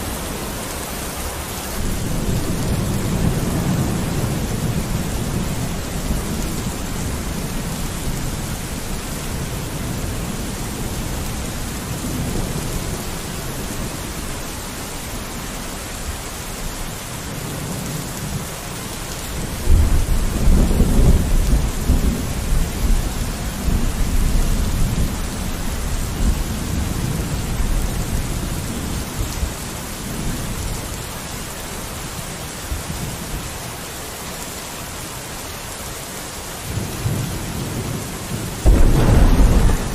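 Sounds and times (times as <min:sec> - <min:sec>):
rain on a window: 0:00.0 - 0:39.9
thunder rumbling: 0:01.7 - 0:13.1, 0:37.0 - 0:39.9.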